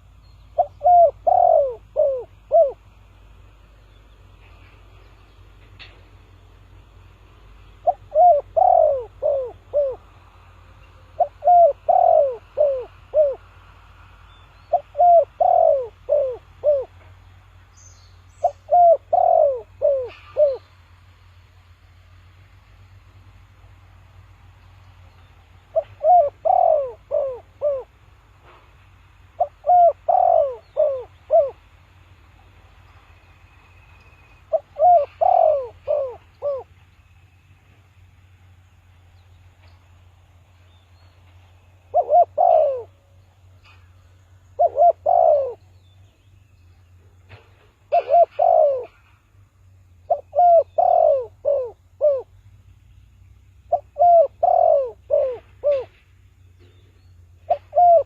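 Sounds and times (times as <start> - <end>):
dove cooing: 0.6 - 3.0, 7.8 - 10.2, 11.0 - 13.6, 14.7 - 17.2, 18.3 - 20.8, 25.6 - 28.0, 29.3 - 31.7, 34.4 - 36.8, 41.8 - 43.2, 44.6 - 45.8, 47.3 - 49.2, 50.1 - 52.4, 53.6 - 56.0, 57.4 - 58.0.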